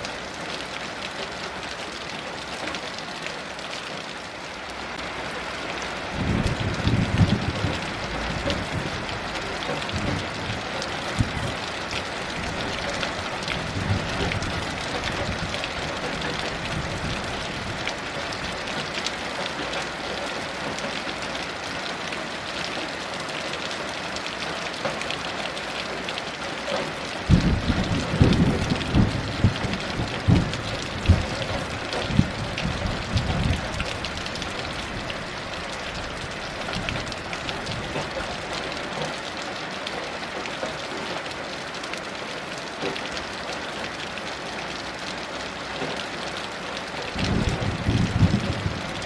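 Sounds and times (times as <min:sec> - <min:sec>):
heavy rain: 0:00.0 - 0:49.0
low rumbling thunder: 0:06.2 - 0:11.6, 0:13.5 - 0:17.8, 0:27.3 - 0:35.1, 0:47.2 - 0:49.0.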